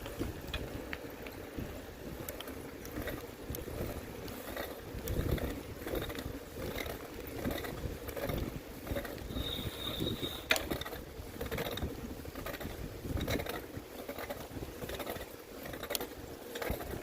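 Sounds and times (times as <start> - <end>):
bicycle rattling and clicking: 0.0 - 17.0
brief high squeal: 9.3 - 10.5.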